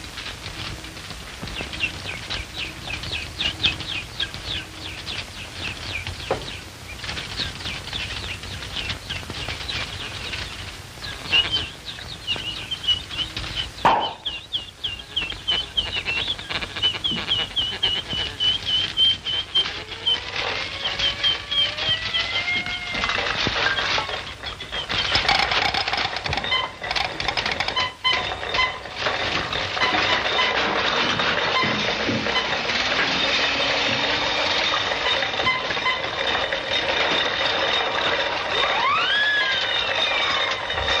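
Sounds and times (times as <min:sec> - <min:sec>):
bird twittering: 0:11.0 - 0:22.5.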